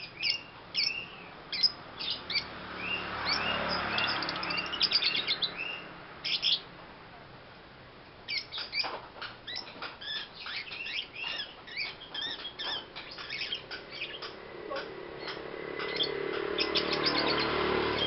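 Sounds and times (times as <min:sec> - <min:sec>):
lovebird chirping: 0:00.0 - 0:06.7, 0:08.3 - 0:18.0.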